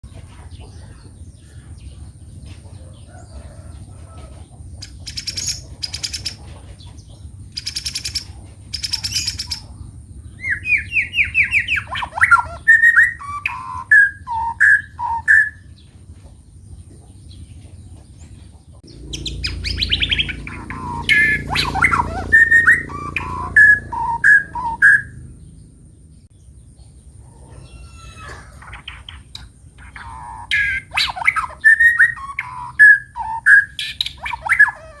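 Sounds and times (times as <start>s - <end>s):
harsh rasping bird calls: 3.1s - 15.8s, 18.8s - 26.3s, 27.2s - 35.0s
bird whistling varied notes: 10.4s - 15.6s, 19.1s - 25.3s, 29.8s - 35.0s
low rumble: 15.6s - 27.3s.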